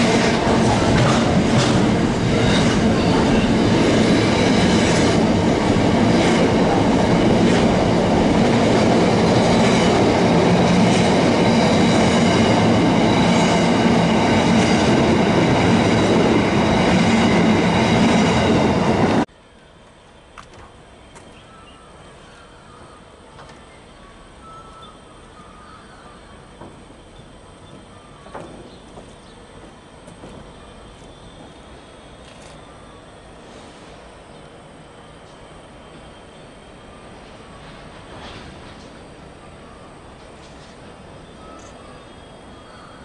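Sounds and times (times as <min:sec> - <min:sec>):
freight train rumbling past: 0:00.0 - 0:43.0
wheels clattering over rail joints: 0:00.4 - 0:03.9.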